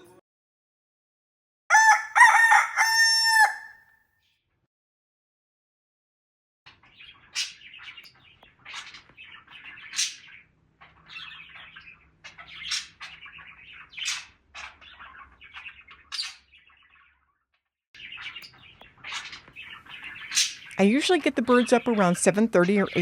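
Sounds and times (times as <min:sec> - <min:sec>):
budgies chirping and chattering: 0:06.7 - 0:17.2, 0:18.0 - 0:23.0.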